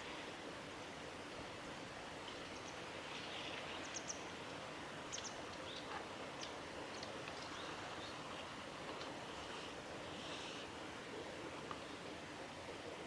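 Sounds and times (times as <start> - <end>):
low outdoor hiss: 0.0 - 13.0
small birds chirping: 2.5 - 4.3, 5.1 - 8.5.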